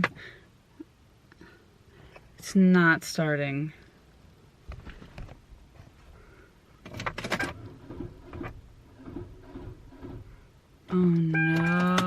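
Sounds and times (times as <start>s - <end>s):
ignition clicks and rattles: 6.8s - 12.0s.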